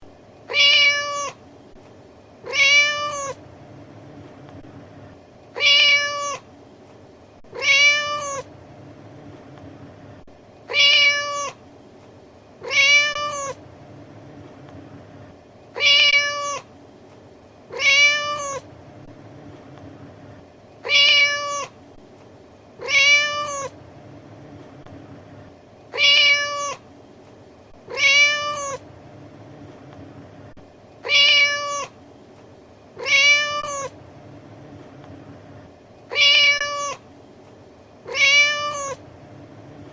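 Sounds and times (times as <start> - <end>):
cat meowing: 0.5 - 1.4, 2.4 - 3.4, 5.6 - 6.4, 7.5 - 8.5, 10.7 - 11.6, 12.6 - 13.6, 15.8 - 16.7, 17.7 - 18.6, 20.8 - 21.8, 22.8 - 23.7, 25.9 - 26.8, 27.9 - 28.8, 31.0 - 32.0, 33.0 - 34.0, 36.1 - 37.0, 38.1 - 39.0.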